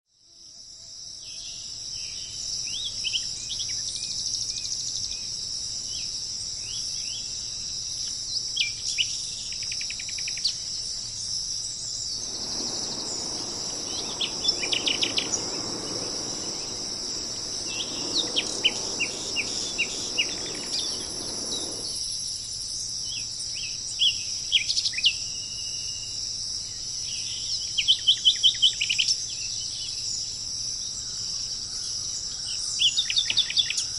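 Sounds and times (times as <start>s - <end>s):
insect chorus: 12.1s - 22.1s
soft rushing noise: 12.1s - 22.1s.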